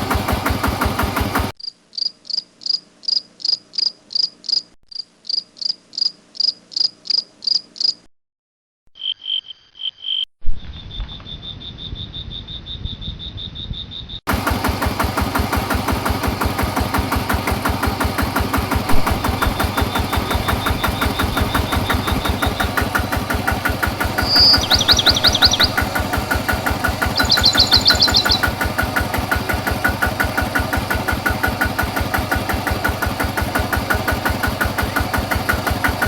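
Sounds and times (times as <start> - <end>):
small engine running: 0.0 - 1.6, 14.3 - 36.0
insect chirping: 1.6 - 8.1, 9.0 - 14.2, 24.1 - 25.9, 27.1 - 28.4.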